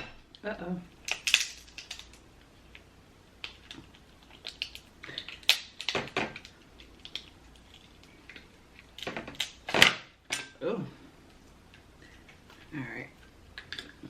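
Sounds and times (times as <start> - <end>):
lobster shell cracking: 1.0 - 10.1.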